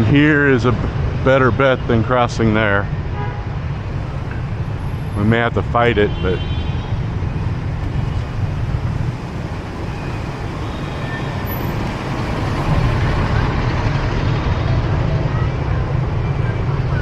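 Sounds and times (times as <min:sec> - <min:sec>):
motorbikes and scooters passing: 0:06.8 - 0:16.9.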